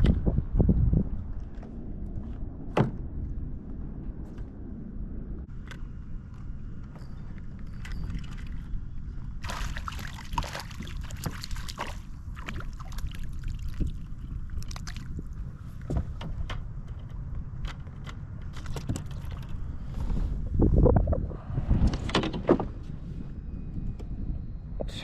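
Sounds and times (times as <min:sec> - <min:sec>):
steady low rumble: 0:00.0 - 0:25.0
kayak handling clicks and rustles: 0:15.7 - 0:19.6.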